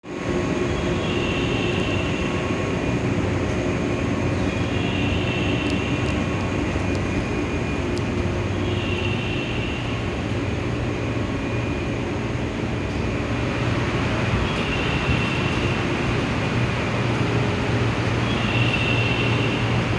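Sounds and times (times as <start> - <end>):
diesel locomotive engine hum: 0.0 - 19.9.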